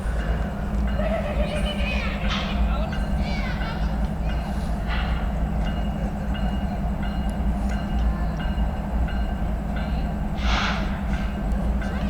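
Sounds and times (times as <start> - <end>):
freight train rumbling: 0.0 - 12.0
brief hiss: 10.4 - 11.0.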